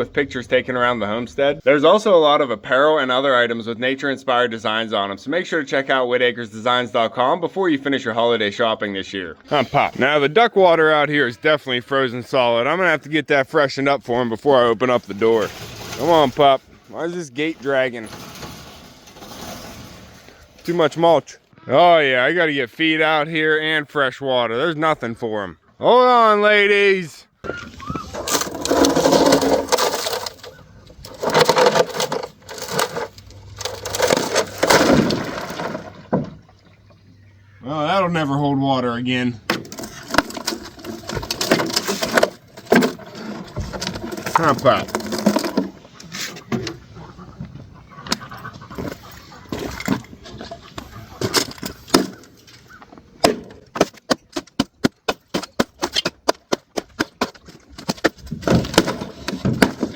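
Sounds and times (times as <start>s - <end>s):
container cracking: 14.4s - 20.9s, 27.7s - 36.5s, 39.5s - 45.8s, 53.2s - 59.9s
ice cracking and crunching: 14.8s - 17.0s, 28.1s - 35.9s, 39.8s - 45.6s.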